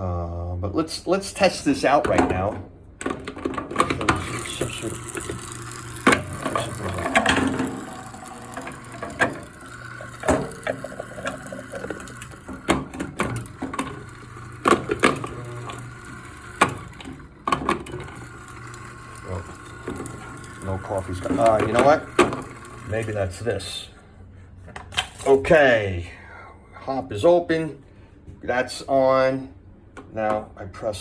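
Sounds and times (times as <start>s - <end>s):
grinder parts clicking and knocking: 2.0s - 22.6s.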